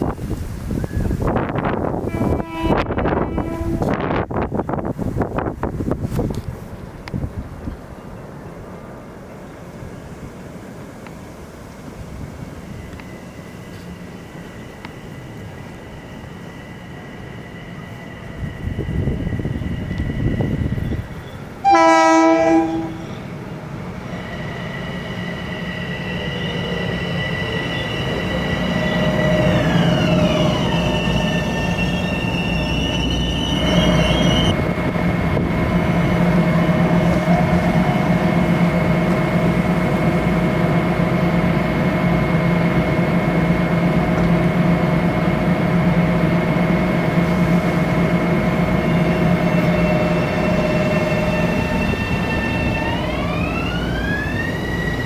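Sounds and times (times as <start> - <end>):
train rumbling past: 0.0 - 55.0
steady high whine: 22.8 - 55.0.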